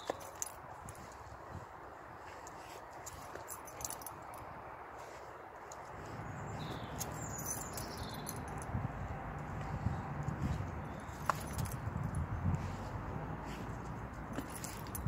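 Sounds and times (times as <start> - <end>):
dog collar tags jingling: 0.0 - 1.2, 2.5 - 4.5, 6.6 - 8.8, 10.9 - 12.3, 14.2 - 15.0.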